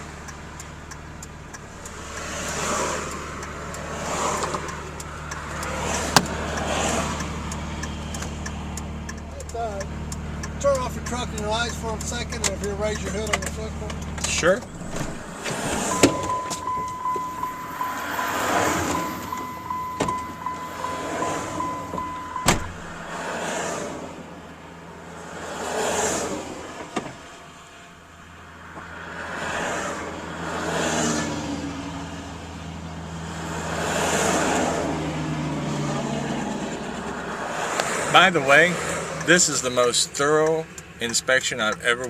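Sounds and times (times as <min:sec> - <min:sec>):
road traffic passing: 0:00.0 - 0:42.0
high electronic beeping tone: 0:15.8 - 0:22.7.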